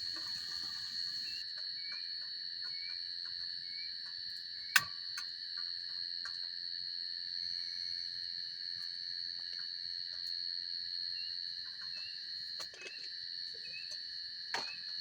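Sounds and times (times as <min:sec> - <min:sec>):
campfire crackling: 0:00.0 - 0:01.4
crickets chirring: 0:00.0 - 0:15.0.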